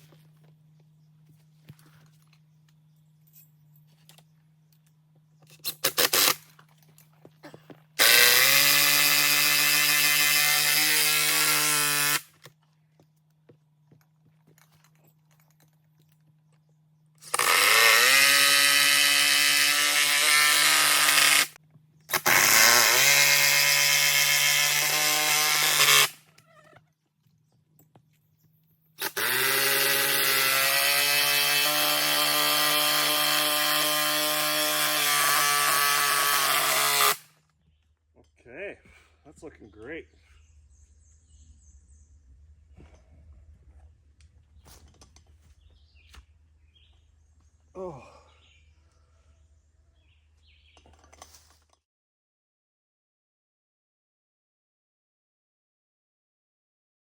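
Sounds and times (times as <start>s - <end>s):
electric power saw cutting wood: 8.0s - 12.3s, 17.2s - 26.2s, 29.0s - 37.3s.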